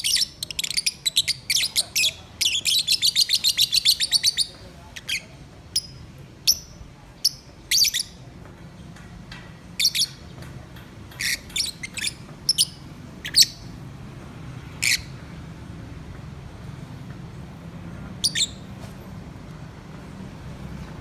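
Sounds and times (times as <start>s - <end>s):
birds chirping shrilly: 0.0s - 5.3s, 11.2s - 13.8s, 14.7s - 15.2s, 18.2s - 18.7s.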